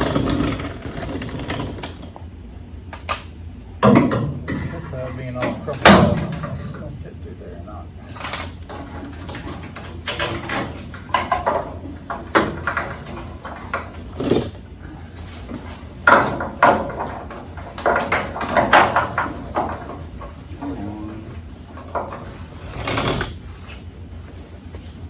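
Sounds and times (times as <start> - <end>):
metal parts clattering and scraping: 0.0 - 2.2, 8.1 - 24.9.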